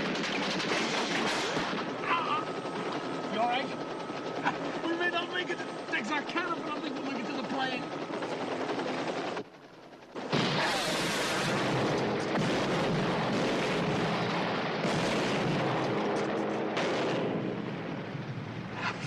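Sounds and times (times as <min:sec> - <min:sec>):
gunfire: 0:00.0 - 0:01.9, 0:10.2 - 0:17.7
explosions: 0:10.3 - 0:16.0.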